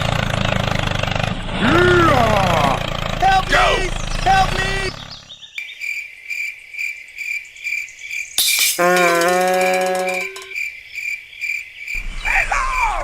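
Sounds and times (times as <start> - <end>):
cricket chirping: 5.6 - 12.0.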